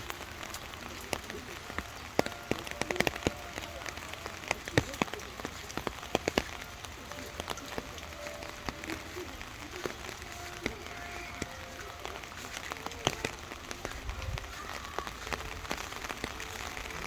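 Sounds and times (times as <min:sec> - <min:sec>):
faint steady hiss: 0:00.0 - 0:17.0
water drops tapping: 0:00.0 - 0:17.0.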